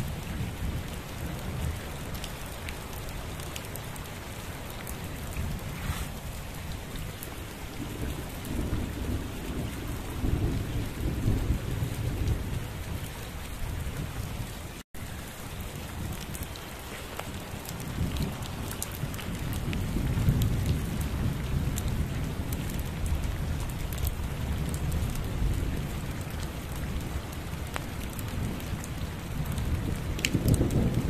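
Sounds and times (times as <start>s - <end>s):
heavy rain pouring: 0.0s - 31.0s
rolling thunder: 7.7s - 13.1s, 17.7s - 27.1s, 28.1s - 31.0s.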